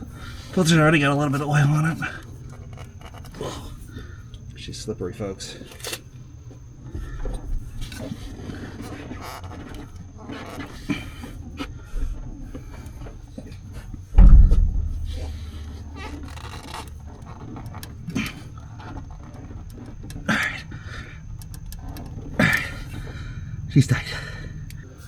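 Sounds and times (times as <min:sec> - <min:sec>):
steady low hum: 0:00.0 - 0:25.0
heavy low thump: 0:14.1 - 0:16.2.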